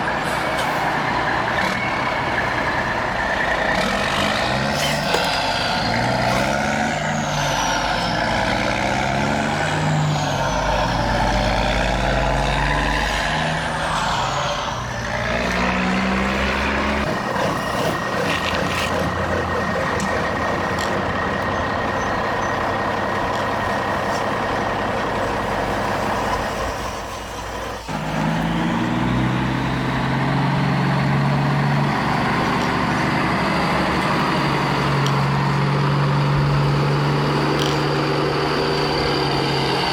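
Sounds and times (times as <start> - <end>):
steady high whine: 0.0 - 28.0
model trucks motor and gear whine: 0.0 - 39.9.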